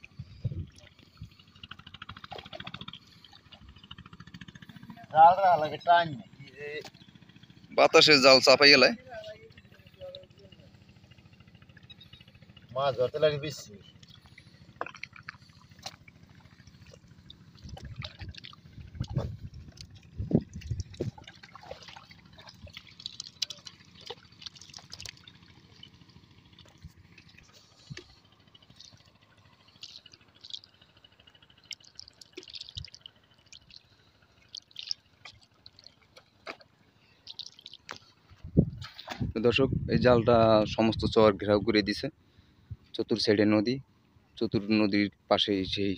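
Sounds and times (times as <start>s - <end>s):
shallow water splashing and dripping: 0.0s - 5.0s, 13.5s - 39.4s.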